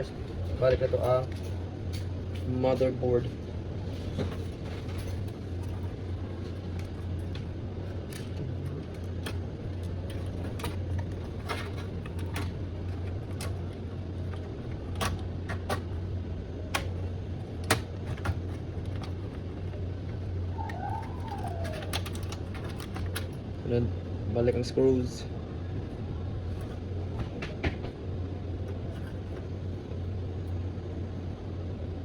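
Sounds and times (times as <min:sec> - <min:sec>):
steady low hum: 0:00.0 - 0:32.0
clicks and knocks of computer parts: 0:04.1 - 0:20.2, 0:21.0 - 0:23.5.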